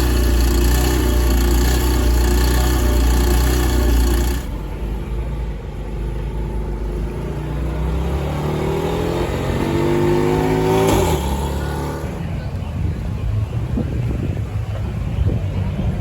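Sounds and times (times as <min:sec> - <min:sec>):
car engine accelerating: 0:00.0 - 0:12.7.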